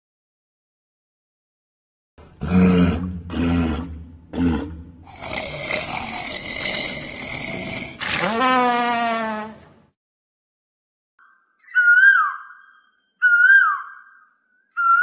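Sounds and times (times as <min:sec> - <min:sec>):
walrus calling: 0:11.7 - 0:15.0.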